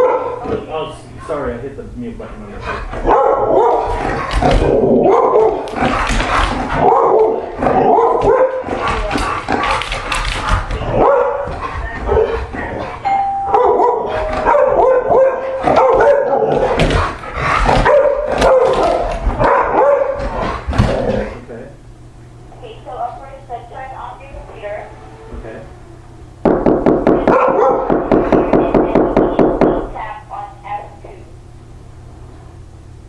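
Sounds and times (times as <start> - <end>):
dog barking: 0.0 - 0.5, 3.0 - 4.3, 5.0 - 5.7, 6.8 - 9.9, 10.9 - 12.5, 13.5 - 16.8, 17.7 - 20.3, 27.2 - 28.0
doorbell ringing: 13.0 - 15.2.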